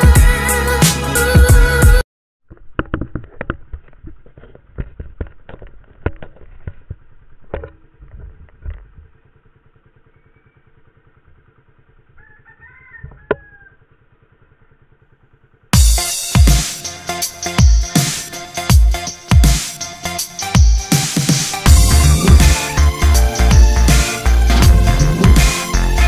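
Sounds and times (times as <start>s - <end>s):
motorcycle engine idling: 7.0s - 19.5s, 21.7s - 26.0s
rooster crowing: 12.1s - 14.0s, 17.8s - 19.1s.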